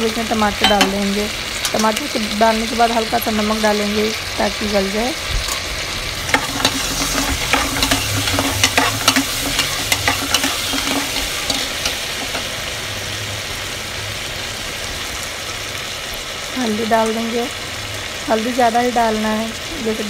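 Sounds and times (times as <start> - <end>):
vegetables sizzling in oil: 0.0 - 20.0
metal spatula scraping a pot: 5.5 - 12.5.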